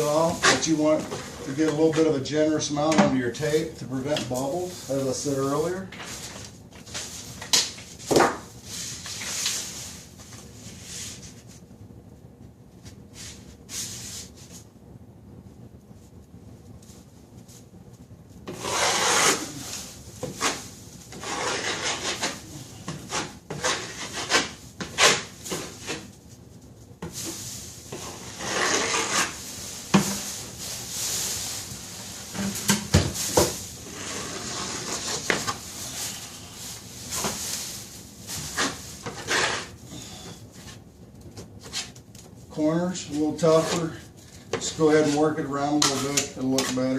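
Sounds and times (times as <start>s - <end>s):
taping knife scraping compound: 0.1s - 0.9s, 18.5s - 26.1s, 27.9s - 30.2s, 33.8s - 35.6s, 38.6s - 40.2s, 43.2s - 46.9s.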